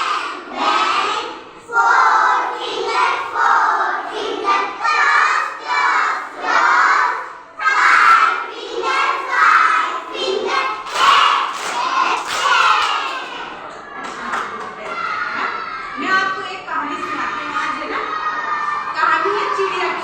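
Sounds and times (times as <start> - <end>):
children chanting in unison: 0.0 - 13.6.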